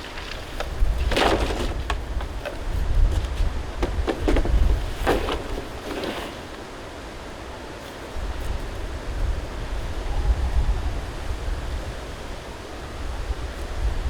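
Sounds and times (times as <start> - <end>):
wind buffeting microphone: 0.0 - 5.9, 8.0 - 14.0
sharp clicks and rustles: 0.0 - 6.6.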